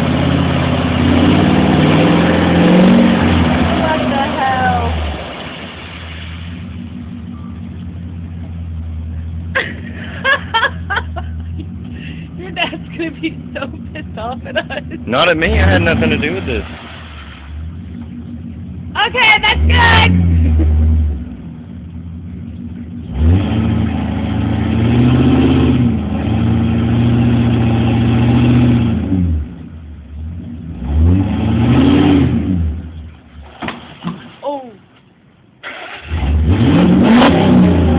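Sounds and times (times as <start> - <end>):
truck engine idling: 0.0 - 20.6, 21.2 - 24.6.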